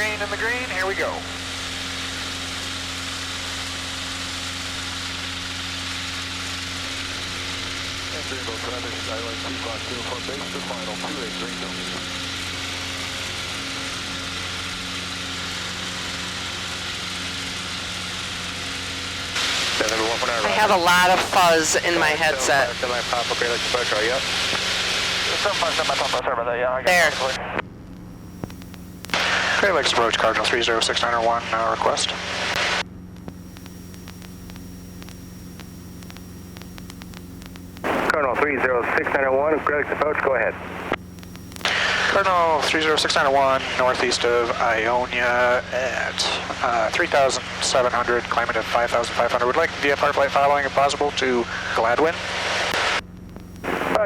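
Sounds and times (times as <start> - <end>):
propeller aircraft engine drone: 0.0 - 54.0
steady low hum: 0.0 - 54.0
faint static ticks: 27.6 - 29.2, 32.6 - 38.2, 40.7 - 41.7, 52.7 - 54.0.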